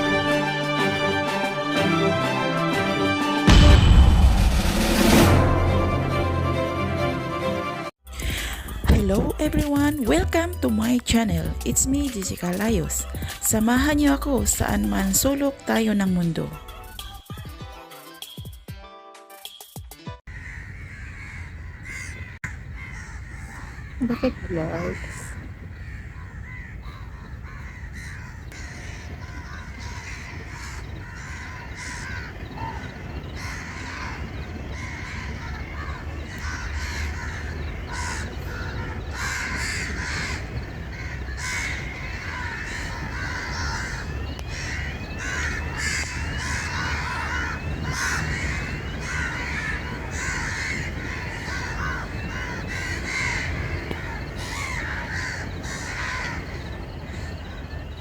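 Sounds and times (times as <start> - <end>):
flock of birds calling: 20.3 - 58.0.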